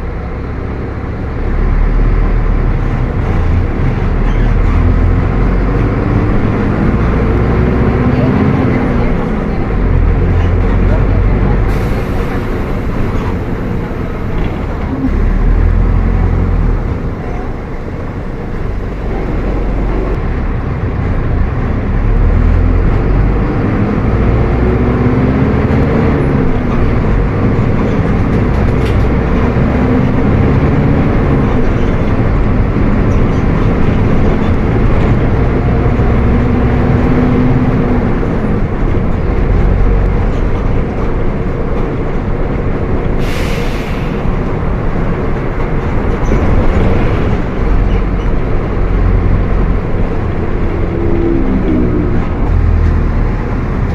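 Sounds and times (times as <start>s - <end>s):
bus diesel engine running: 0.0s - 53.9s
air hiss: 43.2s - 44.4s.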